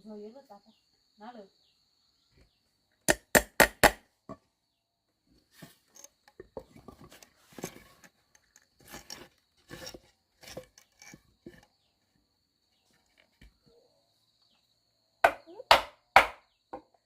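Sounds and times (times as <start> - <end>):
sharp knocks on wood: 3.1 - 4.4, 15.2 - 16.9
scraping and rustling strokes: 5.4 - 11.8.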